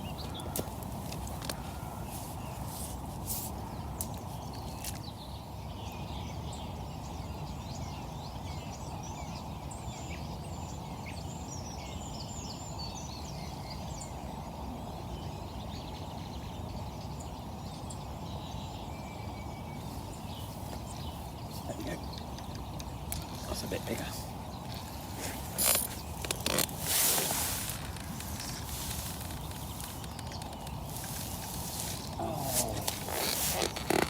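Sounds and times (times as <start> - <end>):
songbirds chirping: 0.0 - 34.0
steady outdoor rushing noise: 21.1 - 34.0.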